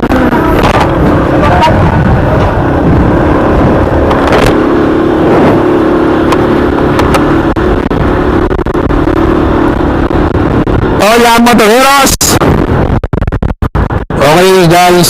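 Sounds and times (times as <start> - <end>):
steady hum: 0.0 - 11.7
wind buffeting microphone: 0.0 - 15.0.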